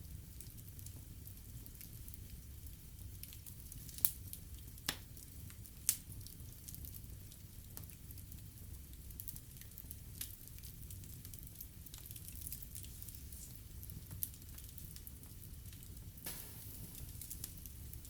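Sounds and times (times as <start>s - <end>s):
fire burning in fireplace: 0.0s - 18.0s
sharp fire pops: 15.7s - 18.0s.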